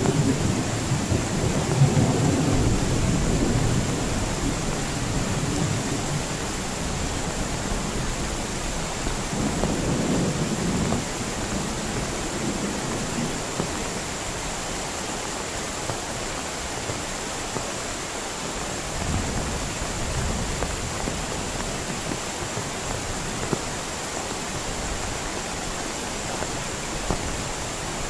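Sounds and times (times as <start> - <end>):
rolling thunder: 0.0 - 13.8, 18.9 - 22.0
heavy rain: 0.0 - 28.0.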